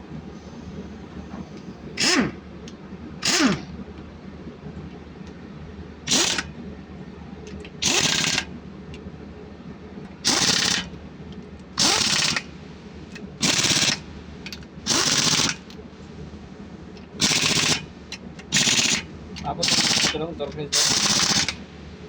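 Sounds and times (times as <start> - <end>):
ratchet wrench clicking: 6.1 - 6.5, 7.8 - 8.5, 10.3 - 10.9, 11.8 - 12.4, 13.4 - 14.0, 14.9 - 15.6, 17.2 - 17.8, 18.4 - 19.0, 19.6 - 21.6.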